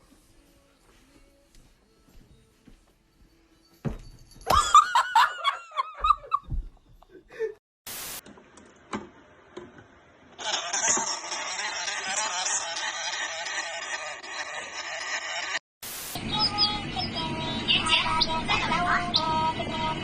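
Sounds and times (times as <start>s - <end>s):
static hiss: 7.9s - 8.2s, 15.8s - 16.2s
high-pitched laughter: 10.4s - 15.6s.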